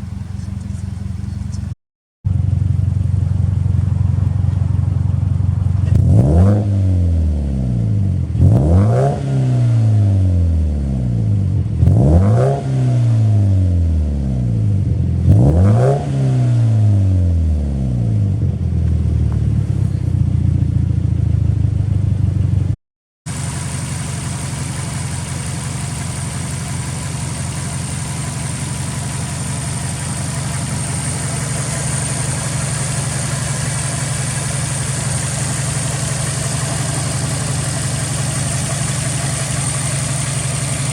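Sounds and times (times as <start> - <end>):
car engine idling: 0.0 - 6.4, 18.1 - 40.9
car engine revving: 2.6 - 22.7, 23.3 - 40.9.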